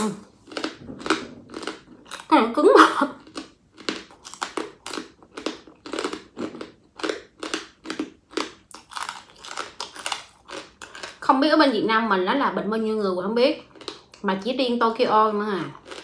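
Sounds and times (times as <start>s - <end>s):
person chewing crunchy food: 0.0s - 11.3s, 13.6s - 14.2s, 15.6s - 16.0s.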